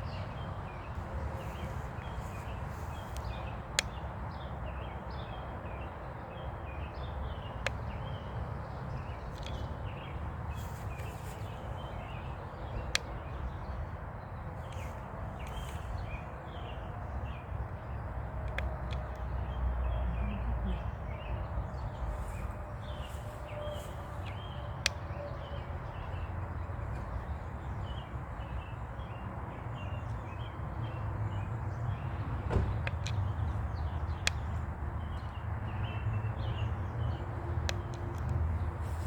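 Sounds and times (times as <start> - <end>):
small birds chirping: 0.0 - 39.0
sharp clicks: 37.1 - 38.4.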